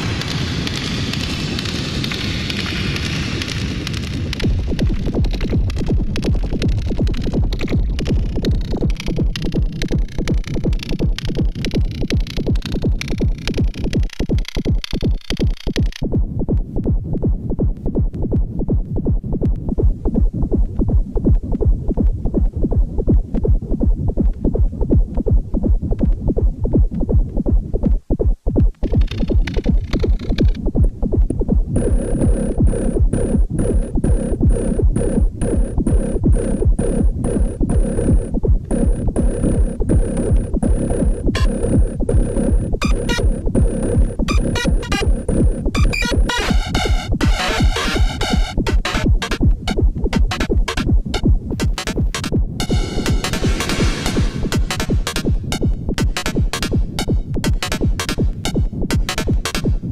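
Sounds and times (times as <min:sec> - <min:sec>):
electronic techno drum beat: 0:00.0 - 0:59.9
high repeating pitched synth part: 0:31.8 - 0:59.6.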